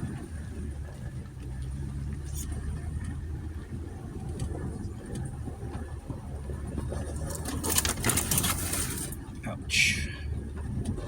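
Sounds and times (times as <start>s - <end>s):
vehicle engine rumble: 0.0s - 11.0s
crackling clicks and scrapes: 6.9s - 9.3s.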